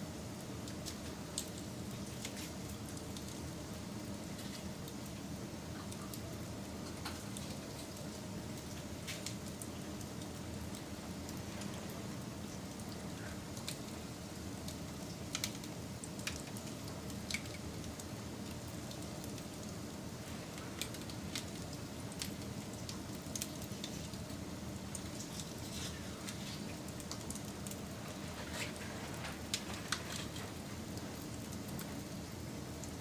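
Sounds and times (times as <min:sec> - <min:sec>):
campfire crackling and popping: 0:00.4 - 0:33.0.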